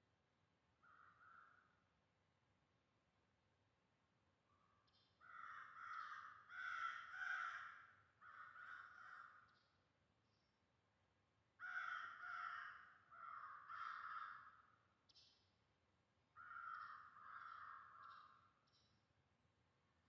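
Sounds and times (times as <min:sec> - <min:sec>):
crow cawing: 0:00.8 - 0:01.7, 0:05.2 - 0:09.5, 0:11.6 - 0:14.8, 0:16.4 - 0:18.4.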